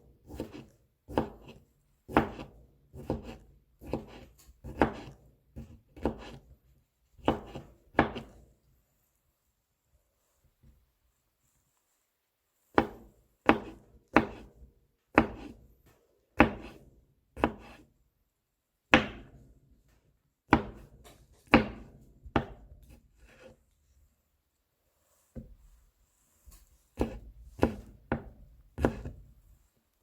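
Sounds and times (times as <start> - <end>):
knife chopping on cutting board: 0.2 - 6.5, 7.2 - 8.4, 12.7 - 15.6, 16.4 - 17.9, 18.9 - 19.4, 20.5 - 23.6, 27.0 - 29.3.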